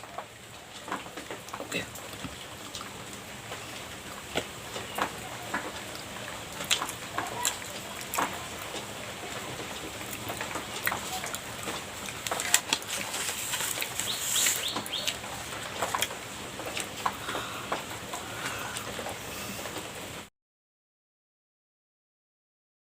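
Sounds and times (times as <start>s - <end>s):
chewing mouth sounds: 10.1s - 19.5s.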